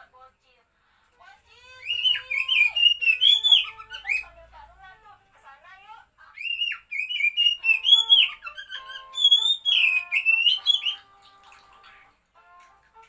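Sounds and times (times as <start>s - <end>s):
bird singing whistled phrases: 1.8s - 4.3s, 6.4s - 11.1s.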